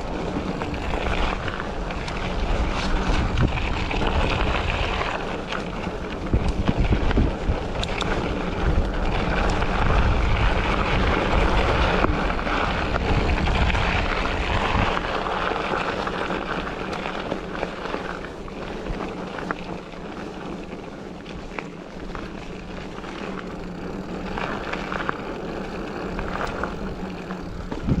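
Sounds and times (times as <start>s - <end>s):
outdoor rush of noise: 0.0s - 28.0s
wind buffeting microphone: 0.0s - 28.0s.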